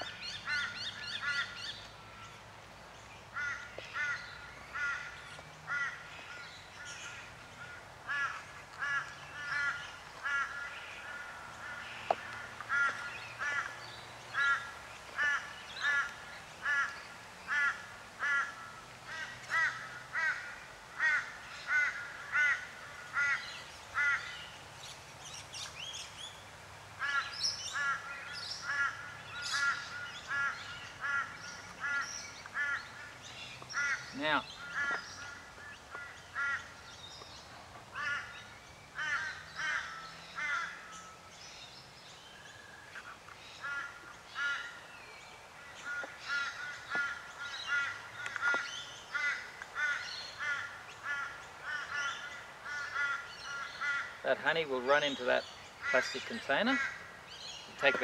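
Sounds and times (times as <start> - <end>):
bird calling: 0.0 - 2.4, 27.0 - 58.0.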